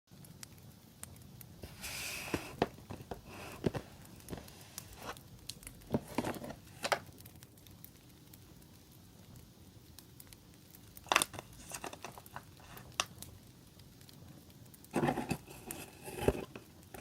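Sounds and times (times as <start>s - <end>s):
sharp crackles: 0.1s - 17.0s
packaging rustling and crinkling: 1.6s - 7.3s, 11.0s - 13.2s, 14.9s - 17.0s.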